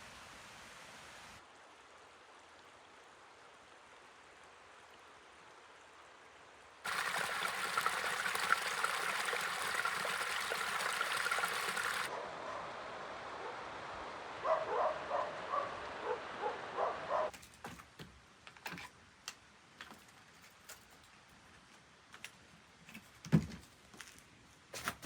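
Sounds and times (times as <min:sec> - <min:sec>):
running water rushing: 0:06.8 - 0:12.1.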